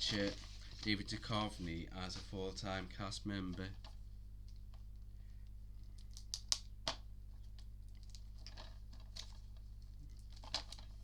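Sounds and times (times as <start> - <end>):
packaging rustling: 0.0 - 2.3
steady low hum: 0.0 - 11.0.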